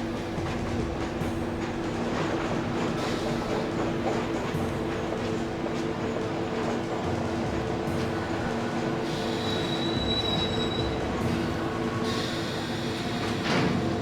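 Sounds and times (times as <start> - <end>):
subway train rumbling: 0.0 - 14.0
high wheel squeal: 9.3 - 11.5.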